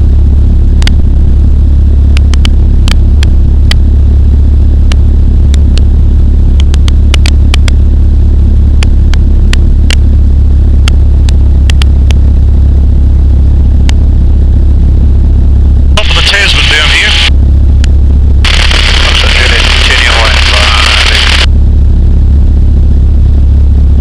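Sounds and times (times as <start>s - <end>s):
aircraft engine droning: 16.0s - 21.7s
sharp clicks: 18.5s - 21.5s.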